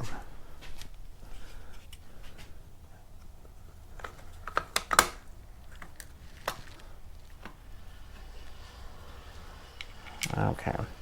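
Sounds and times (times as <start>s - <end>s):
plastic and metal parts clicking: 3.9s - 6.9s.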